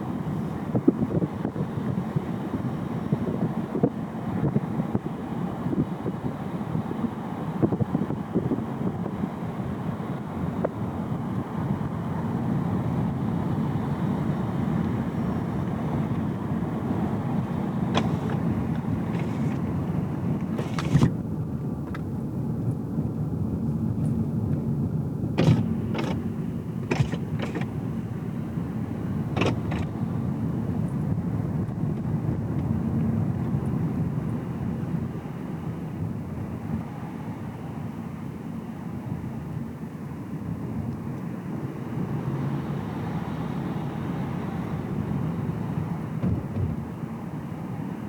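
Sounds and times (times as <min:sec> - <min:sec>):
car cabin road and engine noise: 0:00.0 - 0:48.0
sharp knocks or clicks: 0:17.9 - 0:19.6, 0:25.4 - 0:27.8, 0:29.4 - 0:30.0.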